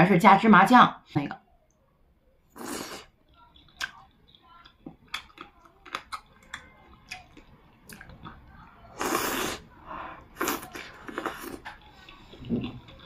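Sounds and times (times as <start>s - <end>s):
slurping soup: 2.5s - 3.1s, 8.9s - 13.0s
wet chewing and mouth clicks: 2.6s - 9.7s, 10.3s - 13.0s.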